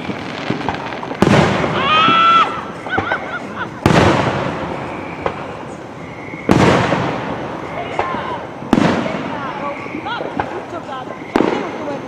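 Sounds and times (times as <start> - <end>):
fireworks bangs: 0.0 - 12.0
crowd whooping and voices: 1.6 - 3.8, 7.6 - 8.6.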